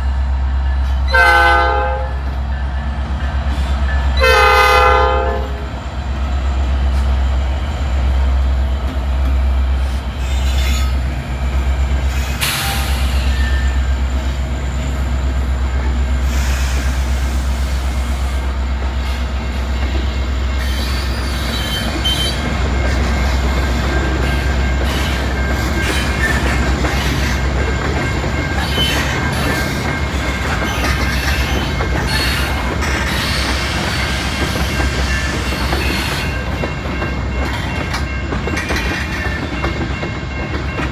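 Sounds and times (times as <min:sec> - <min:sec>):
freight train rumbling: 0:00.0 - 0:40.9
train wheel squeal: 0:09.7 - 0:40.9.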